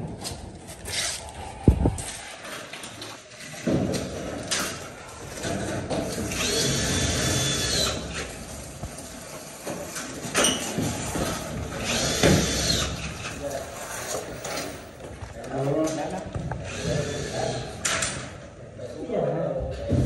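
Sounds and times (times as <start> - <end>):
power tool whining: 5.4 - 8.6, 10.7 - 13.3.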